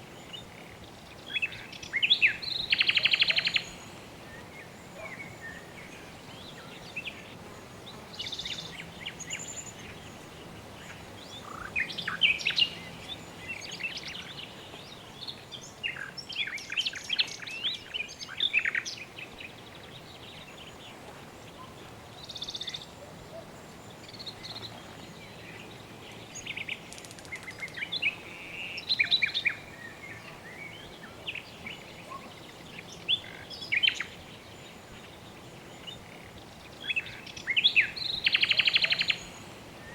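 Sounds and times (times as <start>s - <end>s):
soft background hiss: 0.0s - 39.9s
birds chirping and trilling: 21.5s - 39.9s.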